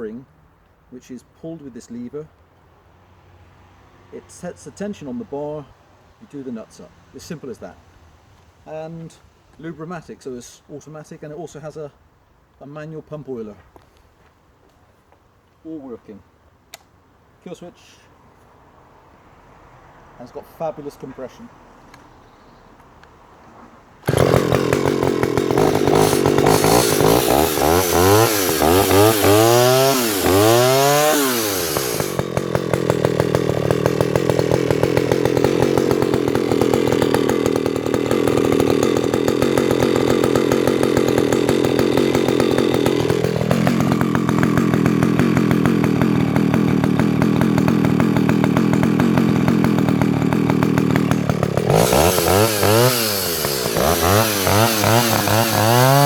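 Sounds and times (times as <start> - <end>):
chainsaw revving: 24.0 - 56.0.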